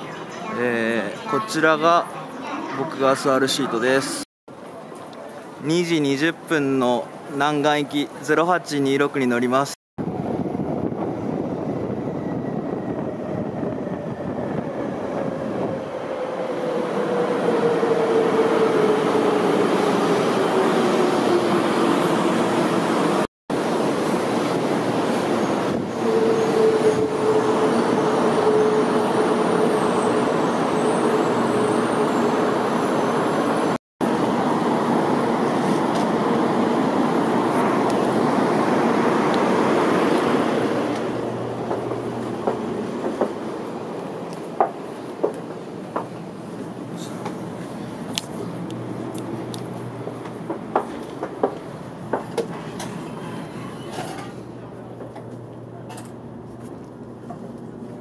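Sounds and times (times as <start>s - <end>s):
train rushing noise: 10.0s - 55.4s
train whine: 10.0s - 58.0s.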